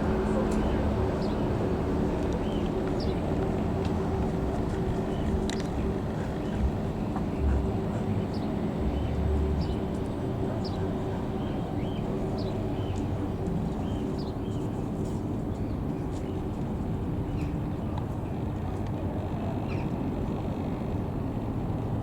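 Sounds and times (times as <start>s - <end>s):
jet aircraft rumble: 0.0s - 22.0s
birds chirping: 0.4s - 1.6s, 2.4s - 3.3s, 4.2s - 13.2s.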